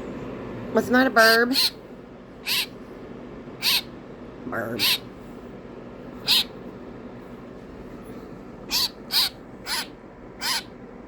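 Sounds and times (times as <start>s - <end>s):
baby bird harsh calls: 1.2s - 1.8s, 2.4s - 2.8s, 3.6s - 4.0s, 4.6s - 5.2s, 6.2s - 6.6s, 8.6s - 10.8s.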